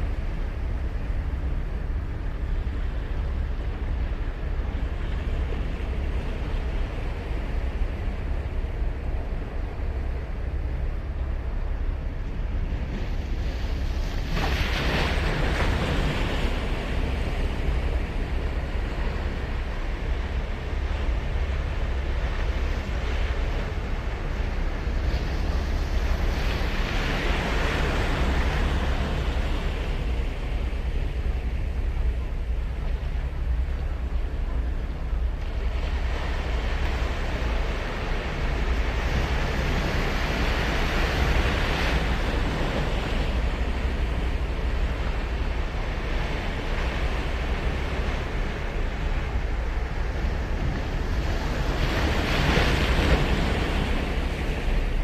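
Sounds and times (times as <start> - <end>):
wind rumble on microphone: 0.0 - 55.0
ocean surf breaking: 12.8 - 55.0.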